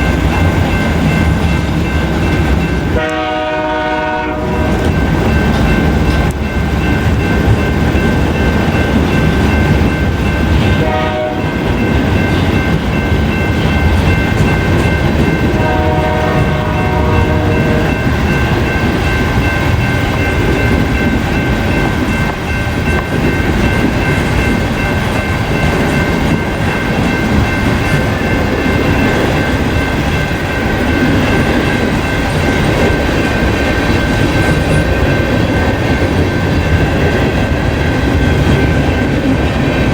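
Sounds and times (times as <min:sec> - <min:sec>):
freight train rumbling: 0:00.0 - 0:39.9
train horn: 0:02.9 - 0:04.9, 0:10.8 - 0:11.6, 0:15.5 - 0:18.0.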